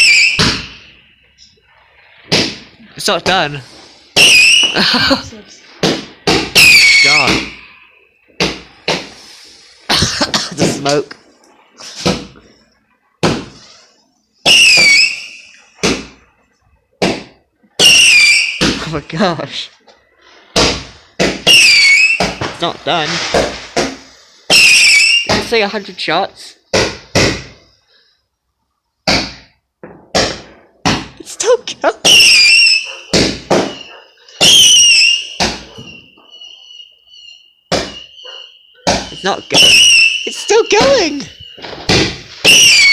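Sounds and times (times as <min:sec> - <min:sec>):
whistling firework shot: 0:00.0 - 0:01.0, 0:04.2 - 0:04.8, 0:06.5 - 0:08.0, 0:14.4 - 0:15.8, 0:17.8 - 0:18.7, 0:21.4 - 0:22.5, 0:24.5 - 0:25.4, 0:32.0 - 0:42.9
firework bangs: 0:02.2 - 0:02.8, 0:04.1 - 0:07.6, 0:14.4 - 0:16.2, 0:17.0 - 0:18.9, 0:20.5 - 0:25.6, 0:29.0 - 0:31.2, 0:32.0 - 0:36.2, 0:37.7 - 0:42.9.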